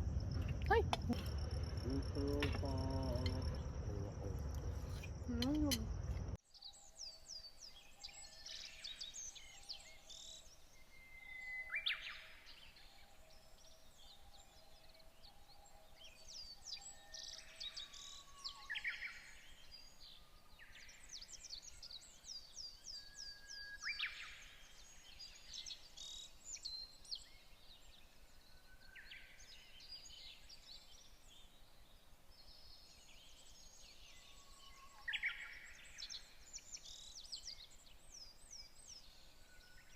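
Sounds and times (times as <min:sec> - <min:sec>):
birds chirping and calling: 0:00.0 - 0:06.1
faint repeated low note: 0:00.0 - 0:06.4.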